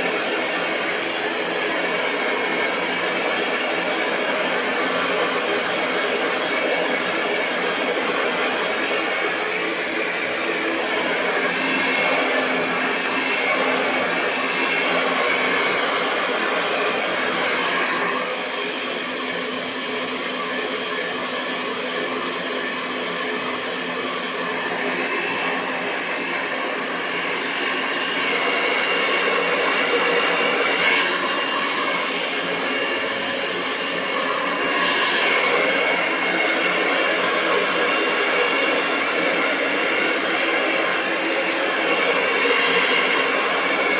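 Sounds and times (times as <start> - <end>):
hair dryer running: 0.0 - 43.9.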